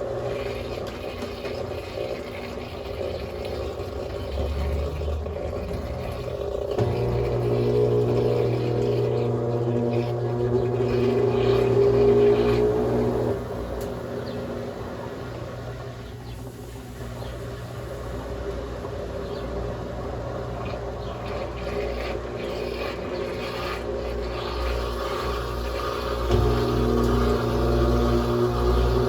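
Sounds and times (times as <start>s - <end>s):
washing machine motor humming: 0.0s - 29.0s.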